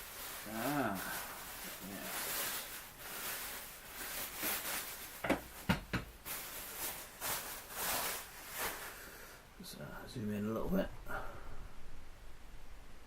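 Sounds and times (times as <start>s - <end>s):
packing material rustling: 0.0s - 9.1s.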